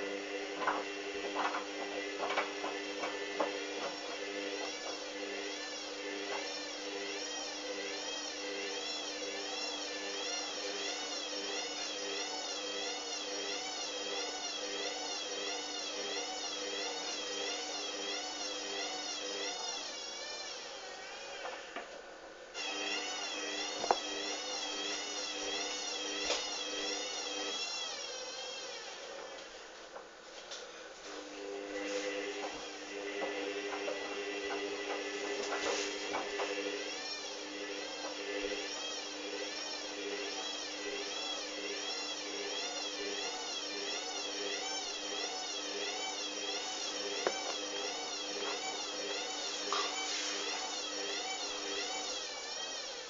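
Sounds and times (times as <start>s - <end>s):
washing machine motor whining: 0.0s - 53.0s.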